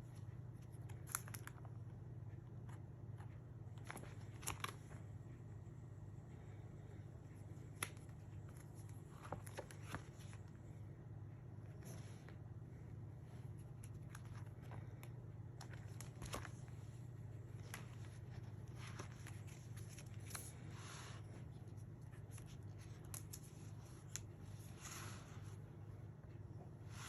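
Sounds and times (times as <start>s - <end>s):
paper rustling: 7.8s - 10.6s, 13.4s - 25.6s.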